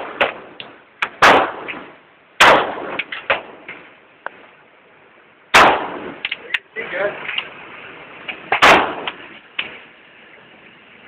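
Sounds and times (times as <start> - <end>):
gunshots: 0.0 - 3.6, 5.5 - 6.2, 8.5 - 9.3.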